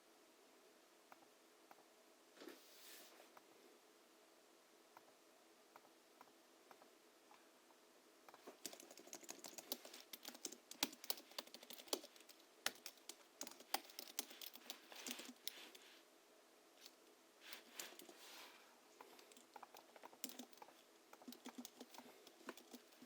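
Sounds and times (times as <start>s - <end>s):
keyboard typing: 8.3s - 15.8s, 16.8s - 18.2s, 19.0s - 23.0s.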